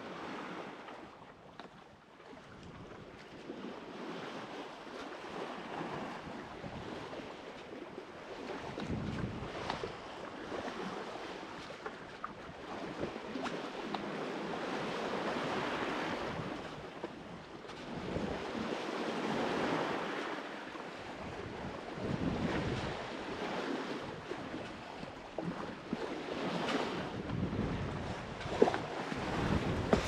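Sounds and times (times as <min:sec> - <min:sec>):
sea waves and rushing water: 0:00.0 - 0:30.0
wind buffeting microphone: 0:08.5 - 0:10.9, 0:21.1 - 0:30.0.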